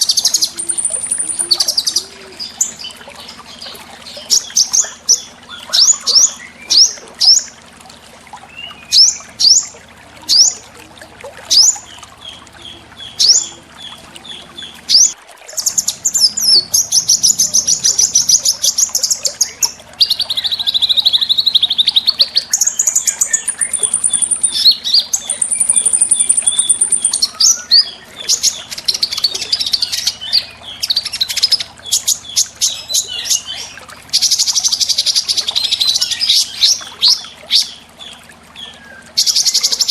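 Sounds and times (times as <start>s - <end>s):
songbird whistled notes: 0.5s - 2.1s, 22.7s - 28.0s.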